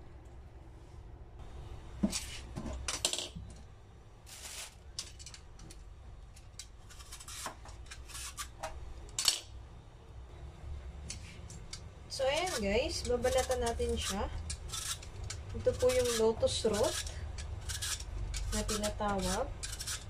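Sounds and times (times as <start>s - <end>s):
peeler scraping vegetable skin: 6.5s - 8.6s, 11.1s - 20.0s.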